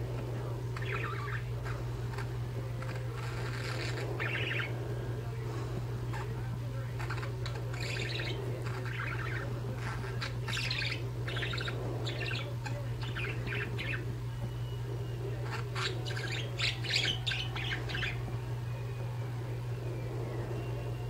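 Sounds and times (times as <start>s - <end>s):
steady low hum: 0.0s - 21.0s
budgerigars chirping: 0.4s - 19.2s.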